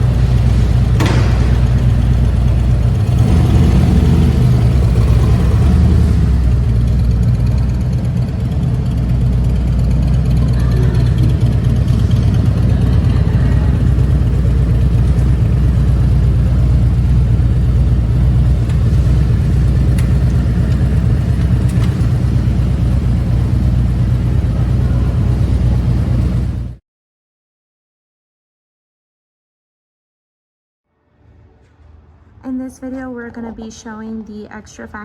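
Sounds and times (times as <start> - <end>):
motorcycle engine idling: 0.0 - 26.8.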